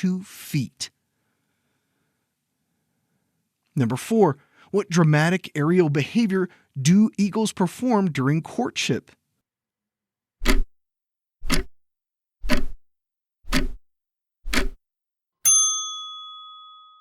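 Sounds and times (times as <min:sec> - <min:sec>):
timer ticks: 0:10.4 - 0:10.7, 0:11.4 - 0:11.7, 0:12.4 - 0:12.8, 0:13.5 - 0:13.8, 0:14.5 - 0:14.8
bell ding: 0:15.5 - 0:17.0.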